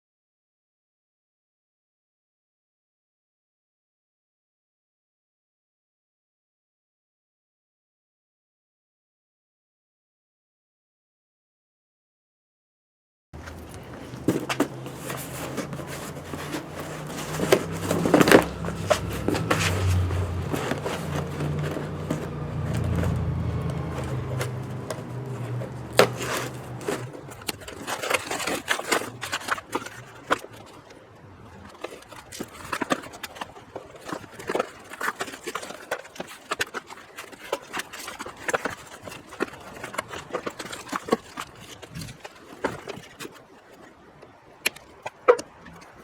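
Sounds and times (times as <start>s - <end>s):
low hum: 13.4s - 27.6s.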